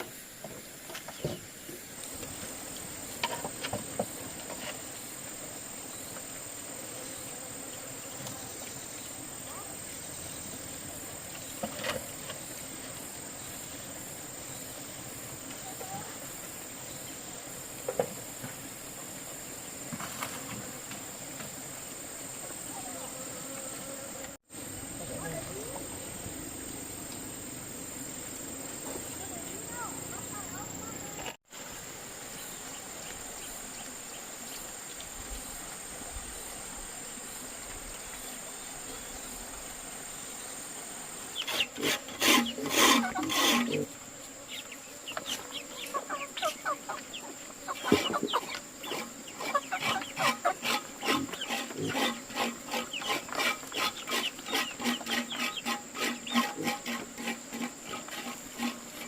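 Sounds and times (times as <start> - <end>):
high insect drone: 0.0 - 59.0.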